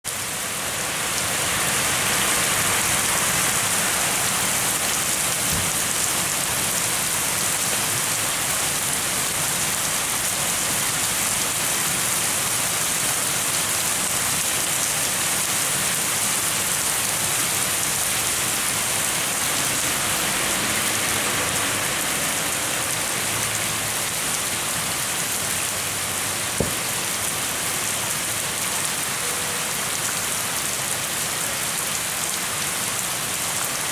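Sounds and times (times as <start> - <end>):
steady rain falling: 0.1 - 33.9
sharp tap: 26.6 - 26.9.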